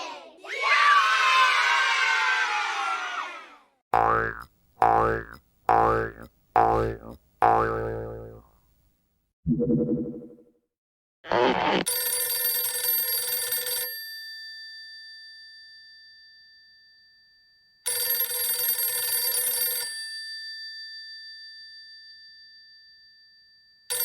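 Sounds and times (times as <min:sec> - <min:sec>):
telephone bell ringing: 0:11.9 - 0:14.2, 0:17.9 - 0:20.0.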